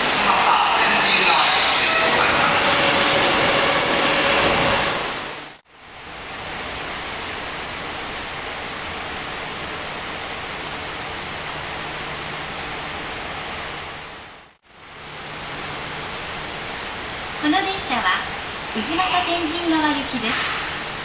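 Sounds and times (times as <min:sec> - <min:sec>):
train: 0:00.0 - 0:21.0
ventilation hiss with low hum: 0:05.7 - 0:21.0.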